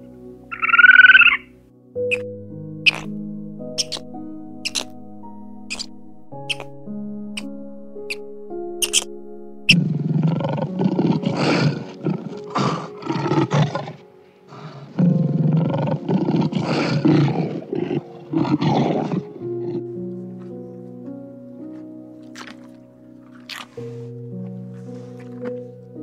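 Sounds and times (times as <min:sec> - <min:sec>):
background music: 0:00.0 - 0:26.0
lion roaring and growling: 0:02.9 - 0:03.2, 0:09.7 - 0:20.0.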